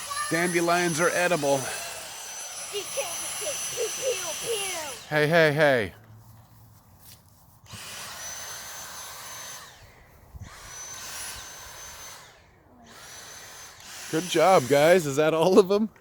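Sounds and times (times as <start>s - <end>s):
vacuum cleaner motor whining: 0.0s - 5.2s, 7.7s - 9.8s, 10.4s - 15.1s.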